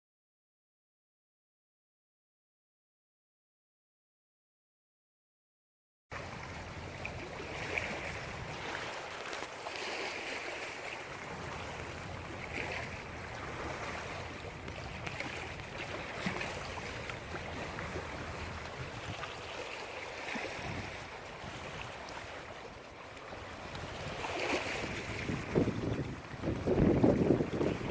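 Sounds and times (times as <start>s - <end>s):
wind: 6.1s - 27.9s.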